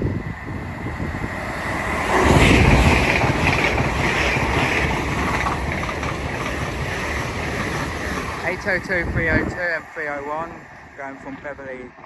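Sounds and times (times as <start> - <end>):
rush of air: 0.0 - 5.2
train passing at speed: 0.0 - 12.0
wheels on rails: 0.1 - 12.0.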